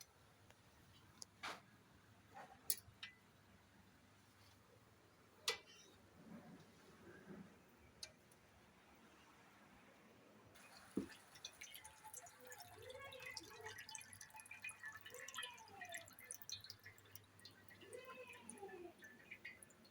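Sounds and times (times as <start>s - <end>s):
water dripping: 10.6s - 19.9s.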